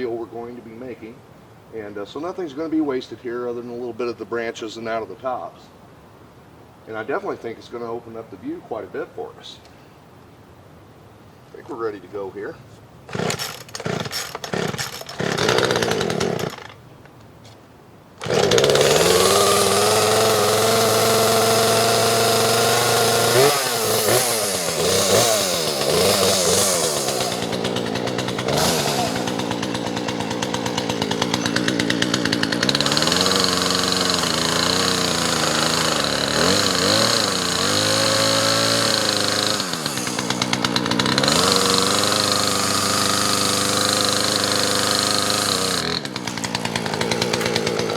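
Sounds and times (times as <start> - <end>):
chainsaw engine revving: 13.1 - 16.8, 18.2 - 47.9.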